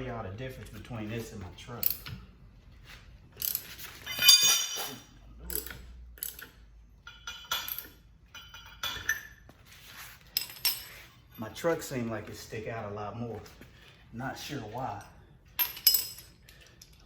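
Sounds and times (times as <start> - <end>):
metallic clinks of lug nuts and tools: 1.8 - 2.3, 3.4 - 9.5, 10.3 - 11.5, 14.9 - 17.0.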